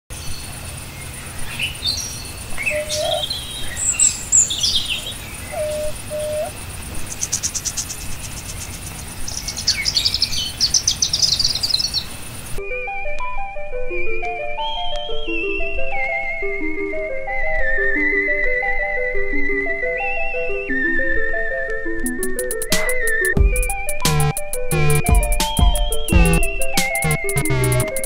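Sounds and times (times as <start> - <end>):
songbirds chirping and trilling: 0.1 - 12.6, 14.0 - 28.0.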